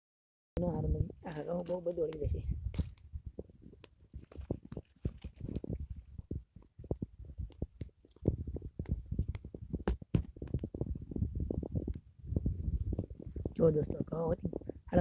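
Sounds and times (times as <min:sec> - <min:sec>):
dry twigs snapping: 0:01.3 - 0:03.1, 0:03.8 - 0:05.7, 0:07.5 - 0:08.3
low rumble: 0:10.5 - 0:15.0.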